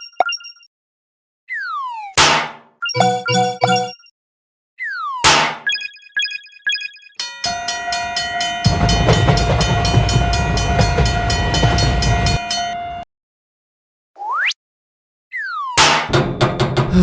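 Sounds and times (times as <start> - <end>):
train wheels clacking: 7.5 - 12.8
train horn tone: 7.5 - 13.0
heavy train rumble: 8.0 - 12.8.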